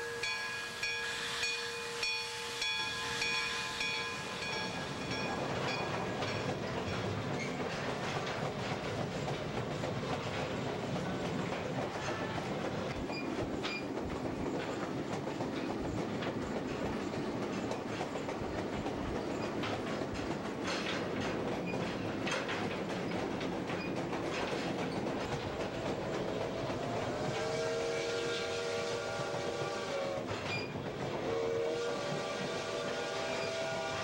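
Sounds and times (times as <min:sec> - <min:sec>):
locomotive whistle: 0:00.0 - 0:05.6, 0:26.3 - 0:34.0
train rumble: 0:00.0 - 0:34.0
wheels clacking over rail joints: 0:03.3 - 0:27.5, 0:29.5 - 0:31.5.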